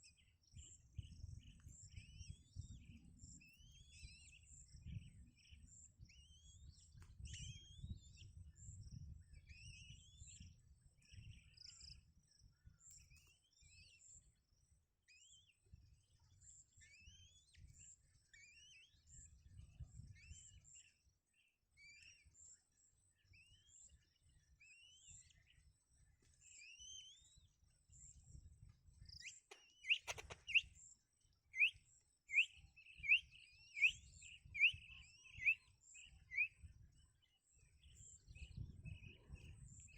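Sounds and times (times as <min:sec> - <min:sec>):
small birds chirping: 0:00.0 - 0:39.9
sharp click: 0:29.5 - 0:30.6.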